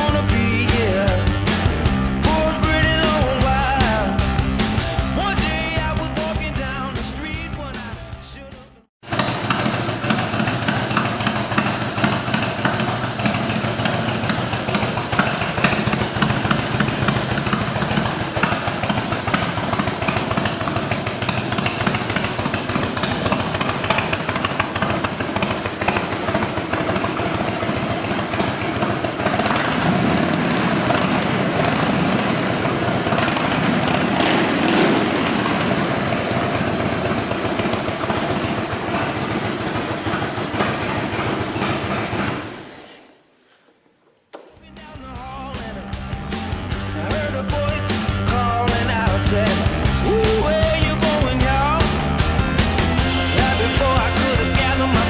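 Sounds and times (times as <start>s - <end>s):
motorcycle engine running: 0.0s - 8.8s, 44.7s - 55.0s.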